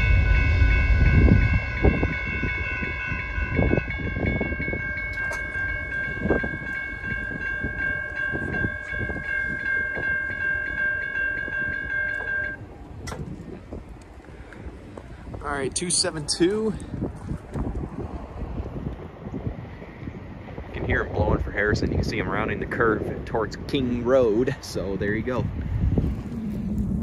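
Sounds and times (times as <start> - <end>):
railroad crossing bell ringing: 0.0 - 12.8
train rumbling: 0.0 - 23.7, 25.7 - 27.0.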